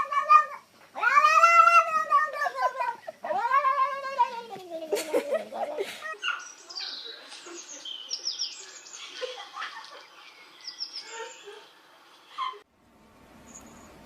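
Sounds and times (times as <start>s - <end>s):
small birds chirping: 4.2s - 12.6s.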